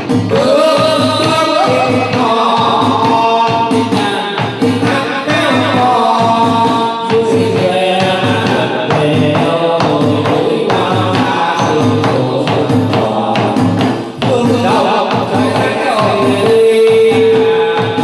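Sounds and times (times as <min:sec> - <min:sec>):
percussion strikes: 0:00.0 - 0:18.0
instrumental accompaniment: 0:00.1 - 0:06.1
person singing: 0:00.3 - 0:13.6.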